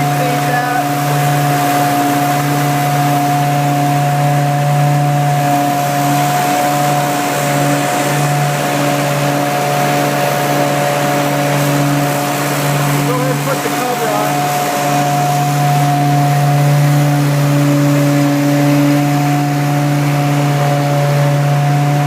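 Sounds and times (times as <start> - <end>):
carpet cleaner engine and vacuum blower: 0.0 - 22.0.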